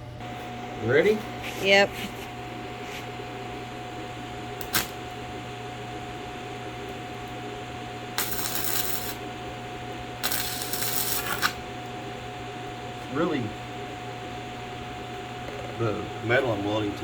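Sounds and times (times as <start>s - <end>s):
electrical hum: 0.0s - 17.0s
welding arc crackling: 0.2s - 5.3s, 8.0s - 11.7s.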